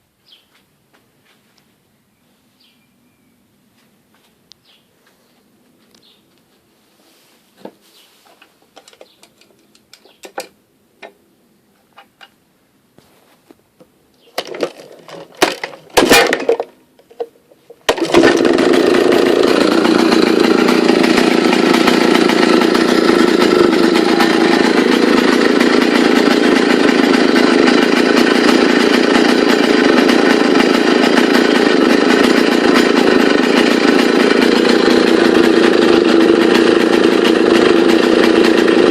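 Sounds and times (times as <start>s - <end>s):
chainsaw starting and running: 14.4s - 38.9s.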